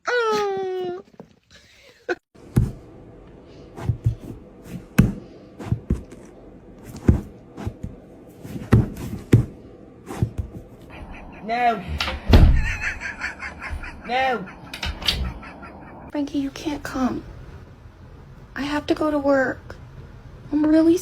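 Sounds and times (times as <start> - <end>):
faint steady background noise: 0.4 - 21.0.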